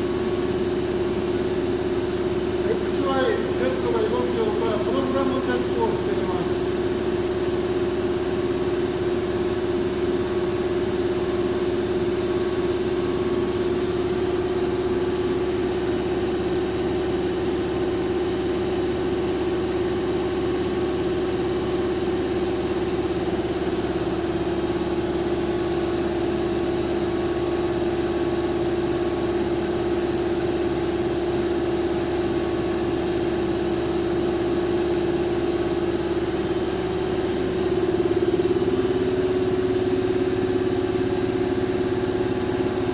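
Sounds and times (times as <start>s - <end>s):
lathe humming: 2.4s - 7.2s.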